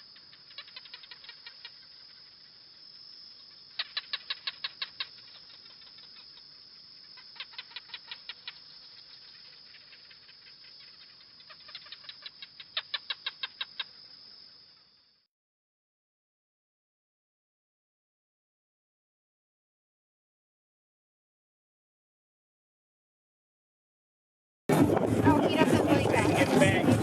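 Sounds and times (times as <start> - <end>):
gecko chirping: 0.0 - 14.4.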